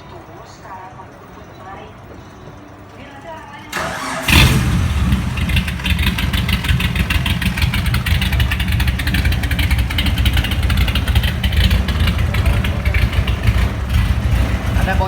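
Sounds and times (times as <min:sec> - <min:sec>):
car engine idling: 0:03.0 - 0:15.0.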